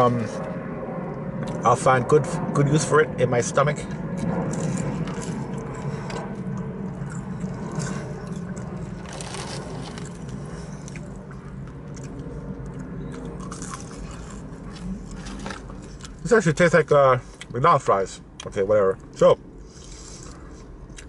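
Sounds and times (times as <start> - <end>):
steady low hum: 0.0 - 21.0
person chewing crunchy food: 3.9 - 16.2, 19.7 - 21.0.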